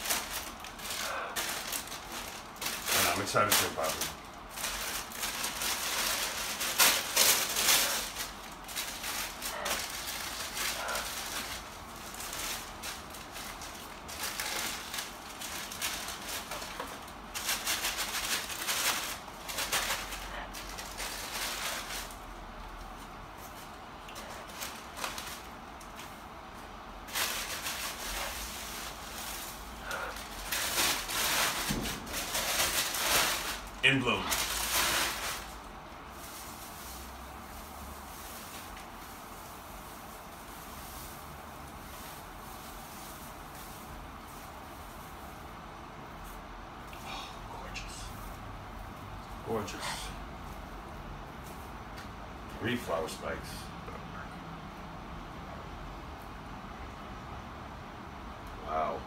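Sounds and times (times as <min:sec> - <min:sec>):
plastic sleeve crinkling: 0:00.0 - 0:46.4.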